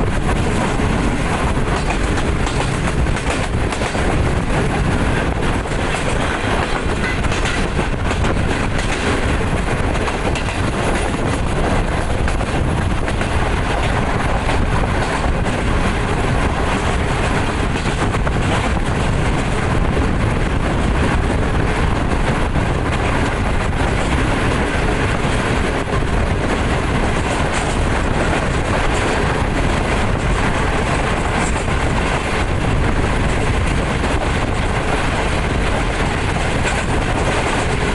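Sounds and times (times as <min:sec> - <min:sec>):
train wheels rumbling and clattering: 0:00.0 - 0:37.9.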